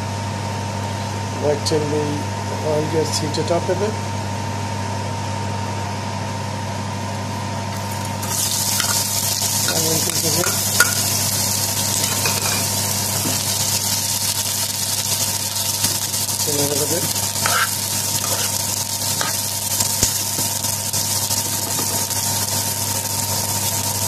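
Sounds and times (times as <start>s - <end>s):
oil sizzling in a frying pan: 7.7s - 24.0s.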